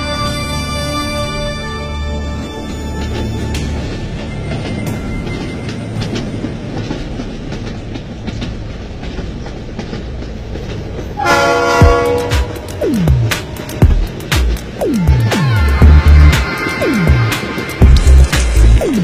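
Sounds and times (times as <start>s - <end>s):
train wheels rumbling on track: 0.0s - 19.0s
train horn: 11.2s - 12.8s, 15.2s - 17.8s.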